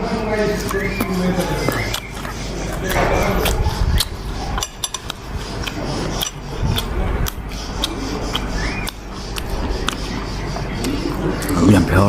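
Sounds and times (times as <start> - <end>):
utensils clinking against a bowl: 0.4 - 8.9.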